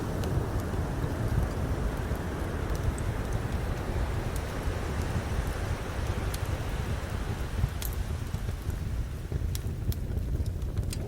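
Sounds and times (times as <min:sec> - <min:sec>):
ocean waves washing: 0:00.0 - 0:08.4
campfire crackling: 0:00.0 - 0:11.0.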